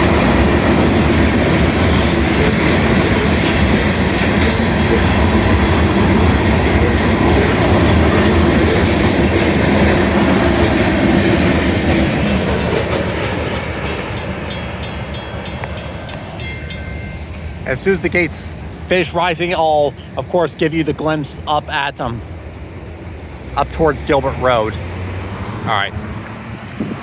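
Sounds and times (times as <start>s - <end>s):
wheels clicking over rail joints: 0.0s - 17.5s
freight train cars rolling: 0.0s - 27.0s.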